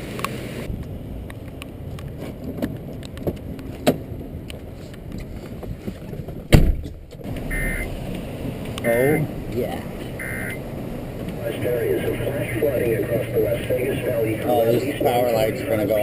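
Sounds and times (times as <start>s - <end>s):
loud thump: 6.5s - 7.1s
sharp knocks: 6.5s - 7.2s.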